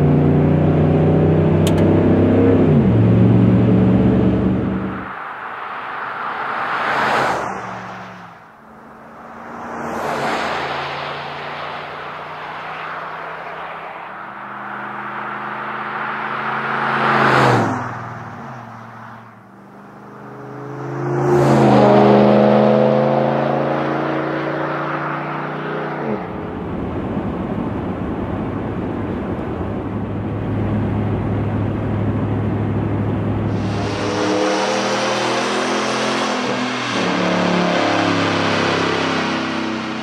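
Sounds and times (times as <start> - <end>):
truck engine driving past: 30.6 - 40.0.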